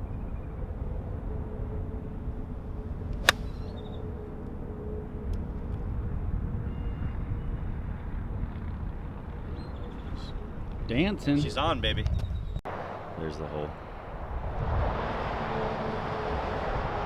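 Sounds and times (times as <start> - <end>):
golf ball struck by club: 3.2 - 3.7.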